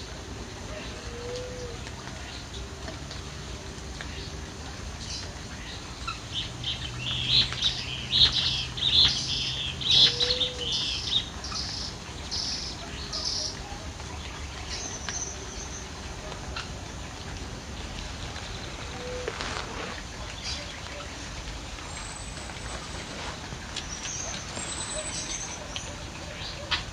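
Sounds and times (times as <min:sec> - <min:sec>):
birds chirping: 0:05.0 - 0:16.7, 0:17.6 - 0:26.9.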